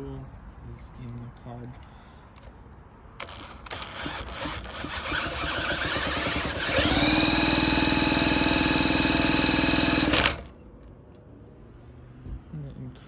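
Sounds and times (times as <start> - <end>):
electric drill whining: 3.2 - 10.5.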